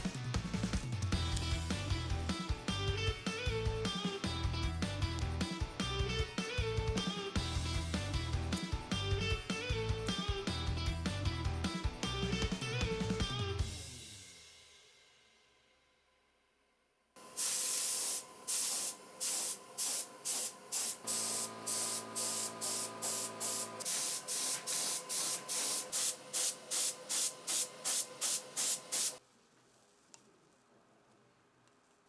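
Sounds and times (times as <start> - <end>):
paint spray hissing in bursts: 17.2 - 29.2.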